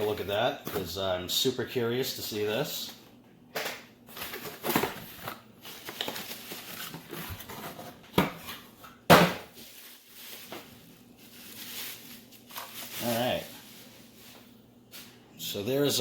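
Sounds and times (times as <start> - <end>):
packaging rustling: 4.1 - 8.6, 9.5 - 15.2.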